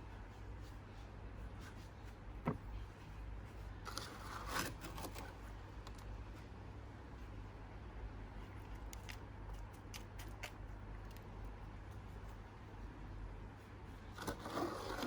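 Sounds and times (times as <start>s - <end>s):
steady low hum: 0.0s - 15.0s
scraping and rustling: 13.7s - 15.0s.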